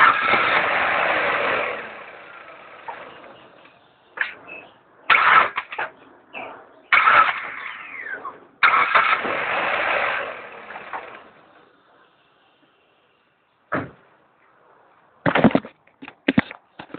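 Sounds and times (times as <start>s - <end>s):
car starter cranking: 6.9s - 11.4s.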